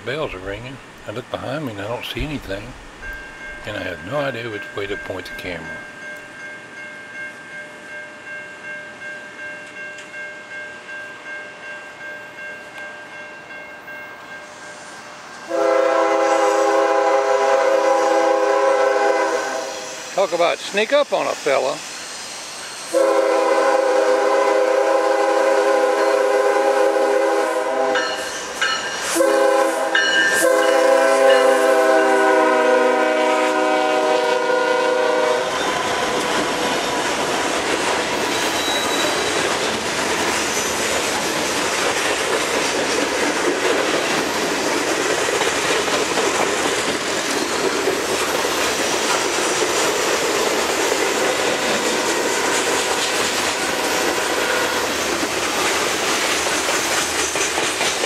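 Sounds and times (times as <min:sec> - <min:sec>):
locomotive air horn blasts: 0:15.5 - 0:20.1, 0:22.9 - 0:28.3, 0:29.1 - 0:35.8
wheels clacking over rail joints: 0:35.6 - 0:58.0.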